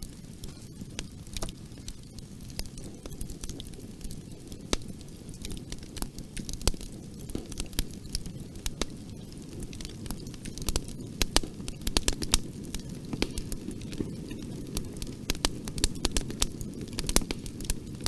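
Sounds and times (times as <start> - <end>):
low rumble of flames: 0.0 - 18.0
wood fire crackling: 0.0 - 18.0
sharp pops and snaps: 4.5 - 18.0.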